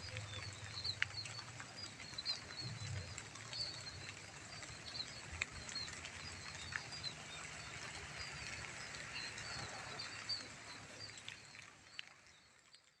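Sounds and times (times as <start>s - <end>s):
light drizzling rain: 0.0s - 13.0s.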